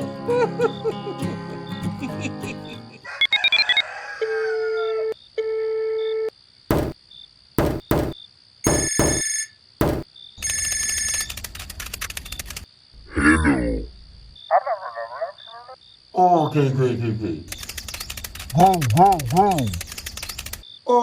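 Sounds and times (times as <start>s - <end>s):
steady electronic beeps: 7.7s - 10.0s
electronic ringing tones: 8.7s - 11.3s
sharp clicks: 11.2s - 12.7s, 17.5s - 20.6s.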